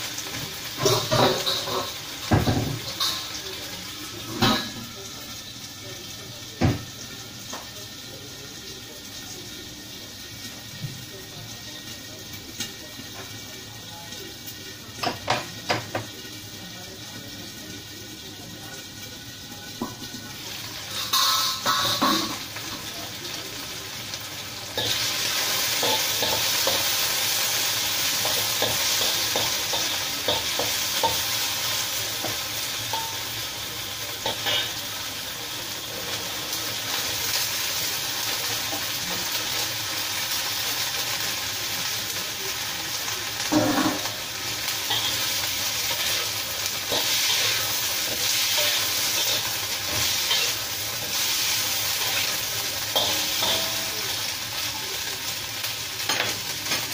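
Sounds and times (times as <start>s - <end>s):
food sizzling in hot oil: 0.0s - 56.9s
spatula scraping wok: 43.4s - 54.4s.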